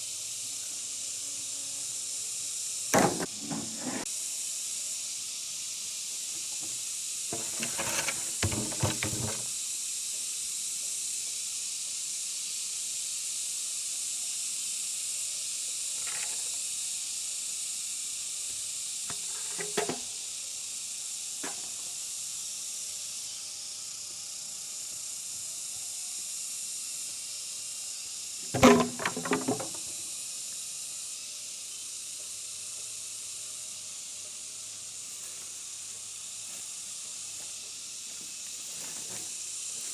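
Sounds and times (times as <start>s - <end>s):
steady high hiss: 0.0s - 39.9s
knocks and thuds: 3.0s - 3.7s, 7.4s - 9.5s, 28.6s - 29.8s.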